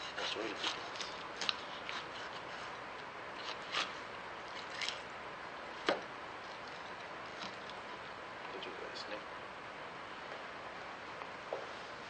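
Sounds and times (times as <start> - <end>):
knife scraping and crunching bones: 0.0 - 2.8, 3.4 - 5.1.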